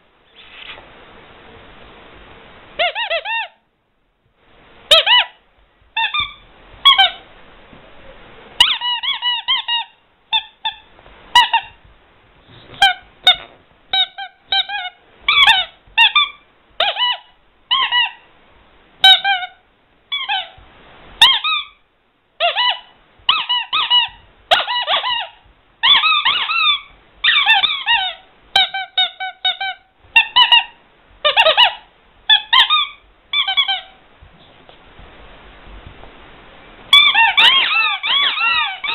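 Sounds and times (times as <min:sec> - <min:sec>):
rubber squeaky toy squeaking: 0:02.8 - 0:03.6, 0:04.9 - 0:07.3, 0:08.6 - 0:11.8, 0:12.8 - 0:18.2, 0:19.0 - 0:20.6, 0:21.2 - 0:21.8, 0:22.4 - 0:34.0, 0:36.9 - 0:38.9.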